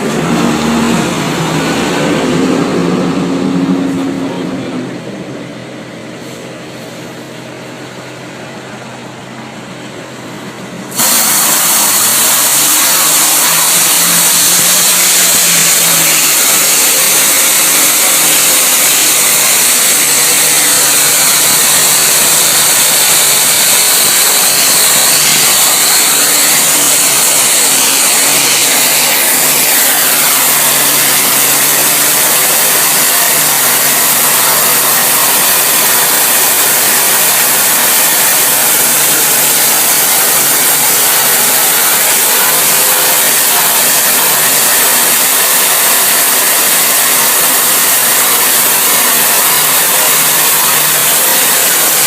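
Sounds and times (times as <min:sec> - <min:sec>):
cleaning machine motor running: 0:00.0 - 0:52.0
cleaning jet hissing: 0:10.9 - 0:52.0.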